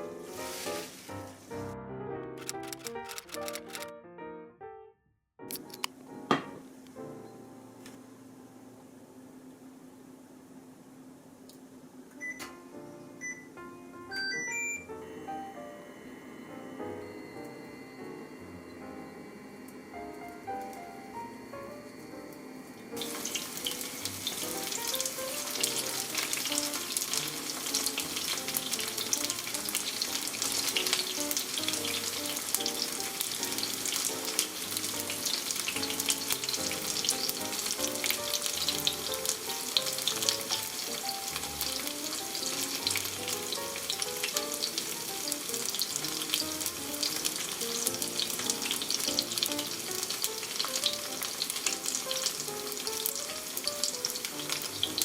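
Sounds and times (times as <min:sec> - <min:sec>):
vegetables frying in oil: 0:00.2 - 0:01.1, 0:23.0 - 0:55.0.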